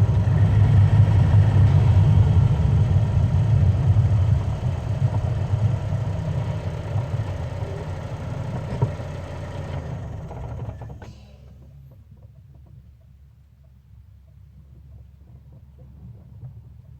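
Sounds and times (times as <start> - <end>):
car engine and road rumble: 0.0 - 11.8
faint low hum with ticks: 10.4 - 16.9.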